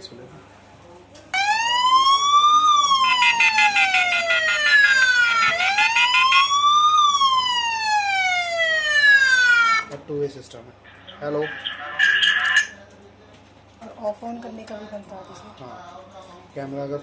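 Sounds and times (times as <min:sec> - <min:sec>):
electronic siren wailing: 0:01.4 - 0:09.9.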